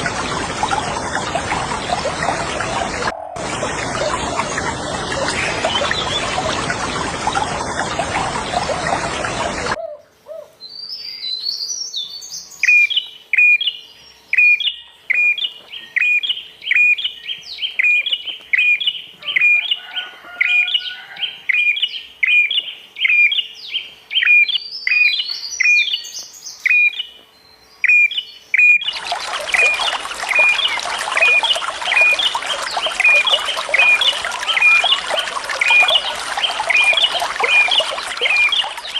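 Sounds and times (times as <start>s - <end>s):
running water: 0.0s - 9.8s, 28.8s - 38.9s
higher bird chirps: 27.8s - 38.9s.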